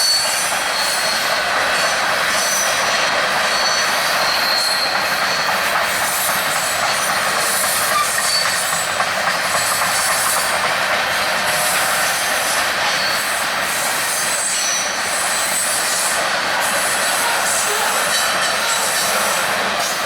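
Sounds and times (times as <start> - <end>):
train wheels rushing on rails: 0.0 - 20.0
high-pitched wheel squeals: 3.4 - 9.0.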